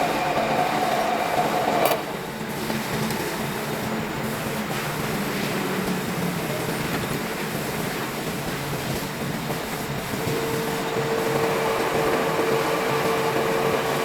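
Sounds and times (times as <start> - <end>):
cnc machine running: 0.0 - 2.5, 10.0 - 14.0.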